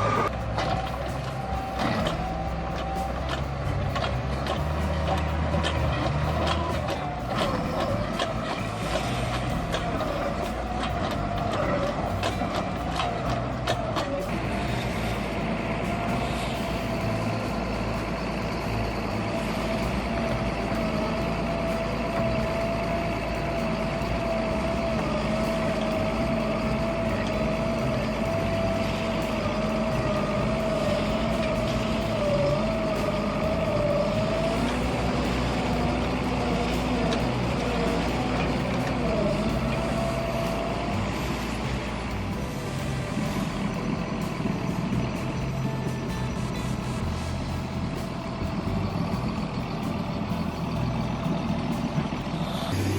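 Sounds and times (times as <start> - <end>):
heavy machinery engine rumble: 0.0 - 52.9
high wavering whine: 51.5 - 52.9.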